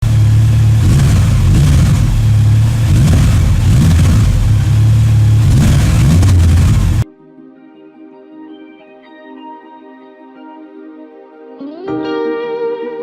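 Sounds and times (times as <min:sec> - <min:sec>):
motorcycle engine revving: 0:00.0 - 0:07.0.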